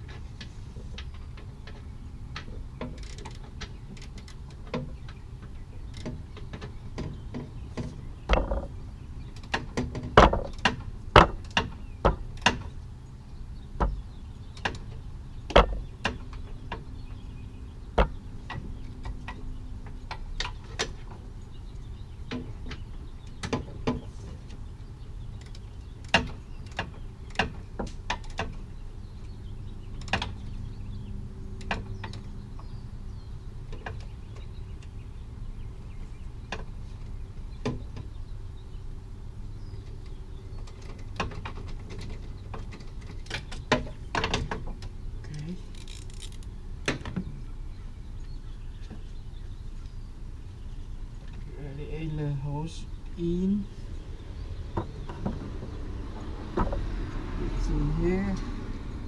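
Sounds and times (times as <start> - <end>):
steady low rumble: 43.4 - 59.0.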